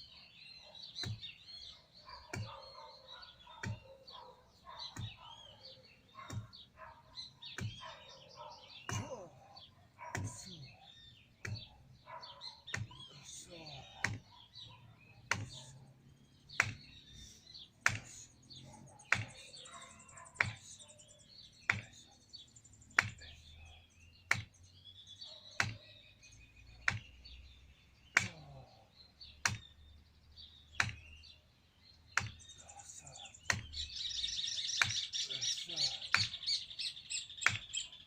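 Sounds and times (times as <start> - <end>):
small birds chirping: 0.0 - 38.0
sharp repeating knock: 8.9 - 9.3, 10.0 - 10.6, 11.4 - 11.7, 14.0 - 14.3, 15.3 - 15.7, 16.6 - 17.0, 17.8 - 18.2, 19.1 - 19.5, 22.9 - 23.3, 24.3 - 24.6, 26.8 - 27.2, 29.4 - 29.8, 30.8 - 31.1, 32.2 - 32.4, 33.4 - 33.8, 37.4 - 37.7.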